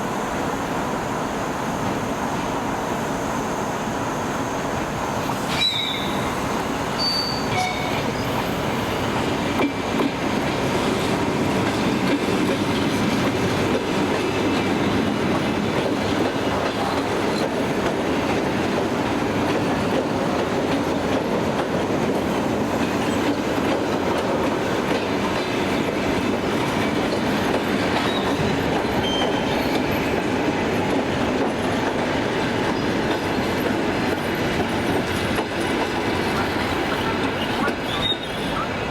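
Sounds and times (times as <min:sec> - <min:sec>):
train wheels clattering on rails: 0:04.6 - 0:38.9
high wheel squeals: 0:05.3 - 0:09.0, 0:28.0 - 0:30.1, 0:36.4 - 0:38.8.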